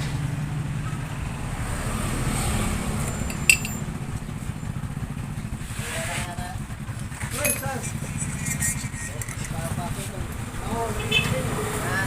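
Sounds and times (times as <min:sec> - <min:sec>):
motorcycle engine running: 0:00.0 - 0:12.0
sharp metallic clink: 0:03.0 - 0:03.9, 0:07.3 - 0:09.6.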